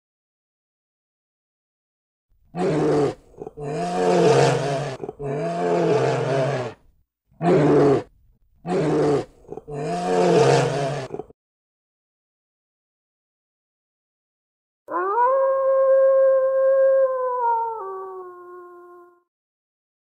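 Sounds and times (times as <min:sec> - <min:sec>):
bear roaring: 0:02.6 - 0:06.8, 0:07.4 - 0:08.1, 0:08.7 - 0:11.3.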